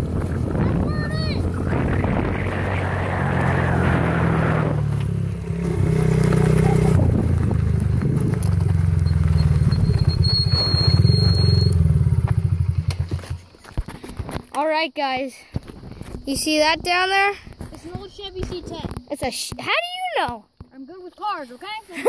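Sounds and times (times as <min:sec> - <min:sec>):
wind noise: 0:00.0 - 0:11.9, 0:15.5 - 0:19.1
small motorbike engine running: 0:04.8 - 0:14.2.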